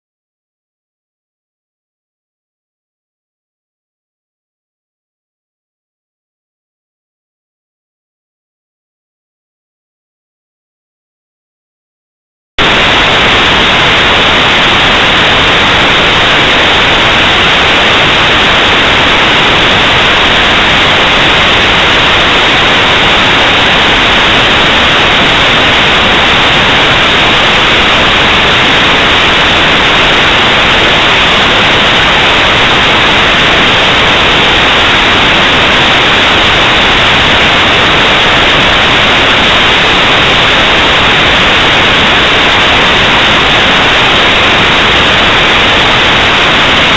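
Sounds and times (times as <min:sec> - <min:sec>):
static hiss: 0:12.6 - 0:46.9.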